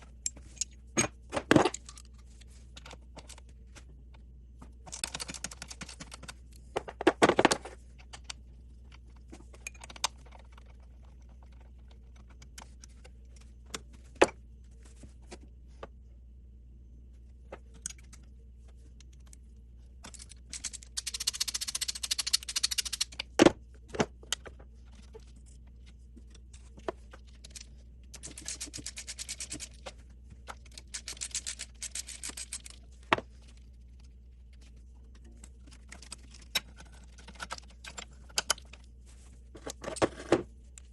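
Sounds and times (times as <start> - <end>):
ratchet rapid clicking: 20.5 - 23.2.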